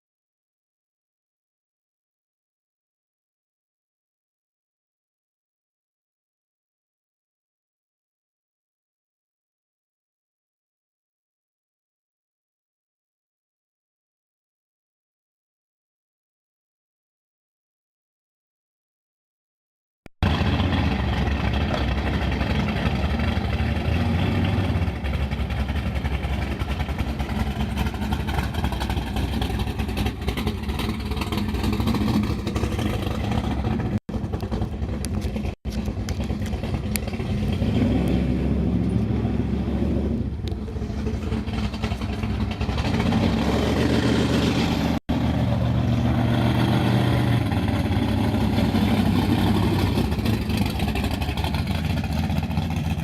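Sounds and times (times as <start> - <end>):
drag car engine running loudly: 20.2 - 53.0.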